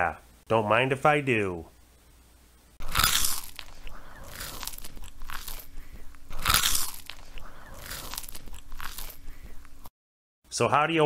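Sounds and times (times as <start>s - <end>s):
chewing: 2.8s - 9.9s
loud crunching bites: 2.8s - 9.9s.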